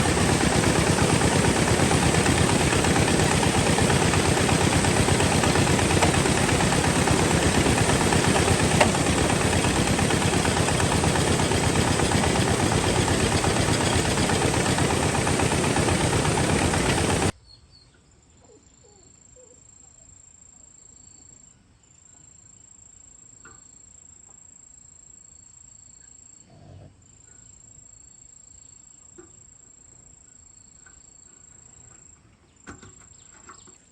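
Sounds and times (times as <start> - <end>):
engine knocking loudly: 0.0 - 17.3.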